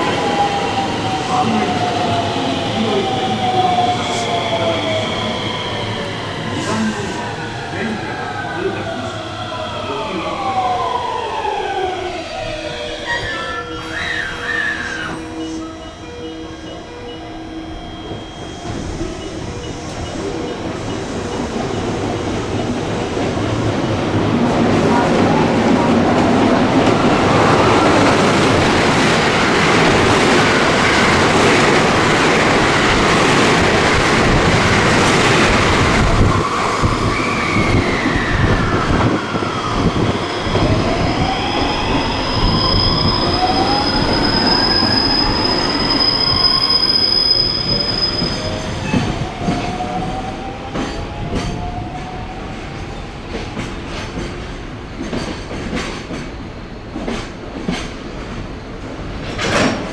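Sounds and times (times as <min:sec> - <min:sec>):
train wheel and running noise: 0:42.4 - 0:59.9.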